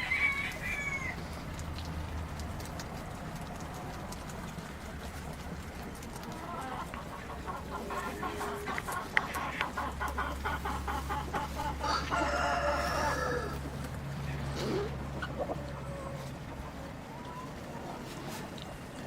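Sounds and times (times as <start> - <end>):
chicken drawn-out call: 0.0 - 1.5, 5.9 - 18.8
chickens clucking: 0.0 - 19.0.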